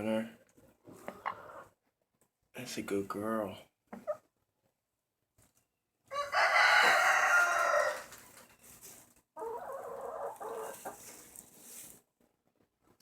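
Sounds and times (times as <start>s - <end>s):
chickens calling: 0.8s - 1.8s, 6.1s - 11.4s
rooster crowing: 6.1s - 8.1s.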